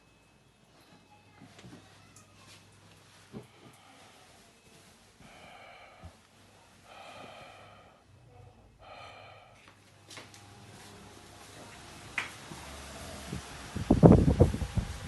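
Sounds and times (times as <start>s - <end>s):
person breathing heavily while sleeping: 3.4s - 4.6s, 5.2s - 9.8s.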